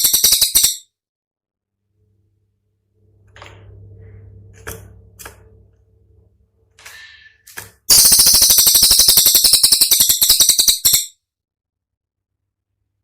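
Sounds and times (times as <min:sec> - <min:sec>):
songbird rattling trill: 0:00.0 - 0:00.9, 0:07.9 - 0:11.2.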